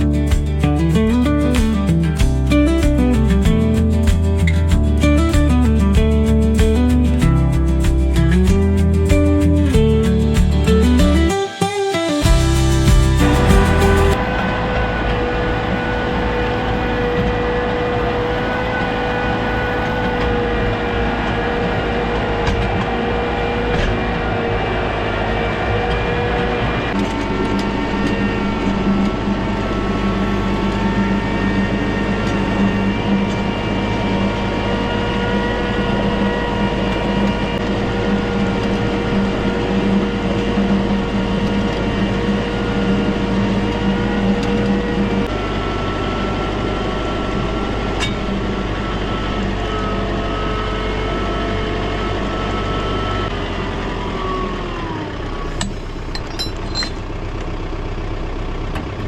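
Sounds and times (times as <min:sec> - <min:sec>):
engine running under load: 0:12.1 - 0:59.0.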